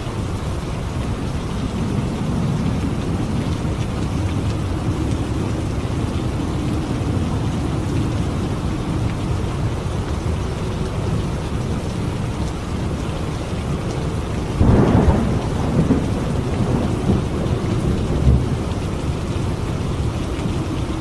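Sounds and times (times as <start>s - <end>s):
low rumble of thunder: 0.0s - 13.4s, 14.1s - 21.0s
rain falling: 0.0s - 21.0s.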